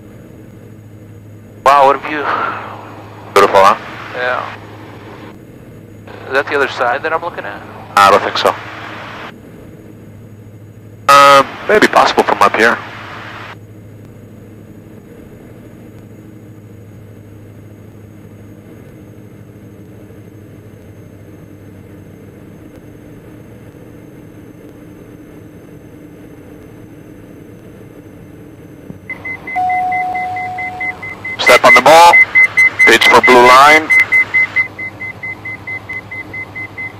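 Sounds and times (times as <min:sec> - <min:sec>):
aircraft engines droning: 0:00.0 - 0:36.9
cockpit alert beeping: 0:29.1 - 0:36.9.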